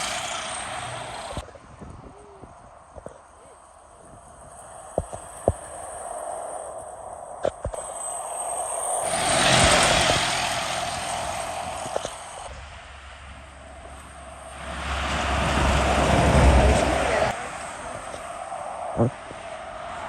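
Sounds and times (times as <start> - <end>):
deep engine drone: 0.0 - 1.5, 7.7 - 18.2
vehicles driving past: 0.0 - 1.6, 7.8 - 20.0.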